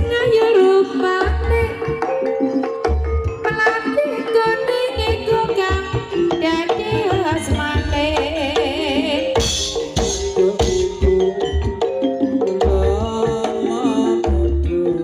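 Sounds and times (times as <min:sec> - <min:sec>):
metallophone notes: 0:00.0 - 0:15.0
hand drum strokes: 0:05.0 - 0:15.0
person singing: 0:12.6 - 0:15.0.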